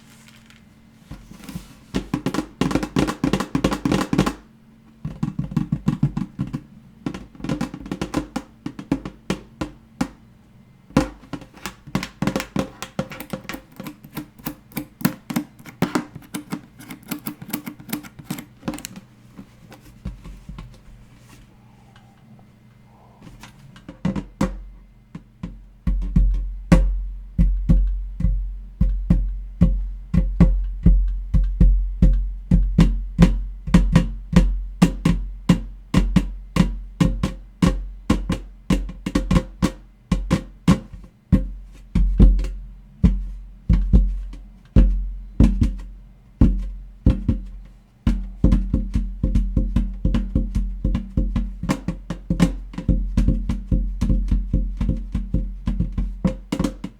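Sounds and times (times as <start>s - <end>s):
tapping on hollow object: 10.9s - 19.1s, 46.4s - 56.9s.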